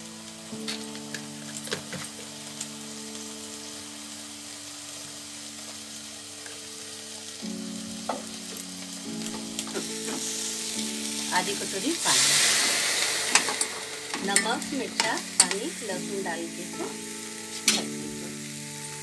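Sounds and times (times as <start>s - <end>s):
soft background music: 0.0s - 19.0s
vegetables sizzling in oil: 0.0s - 19.0s.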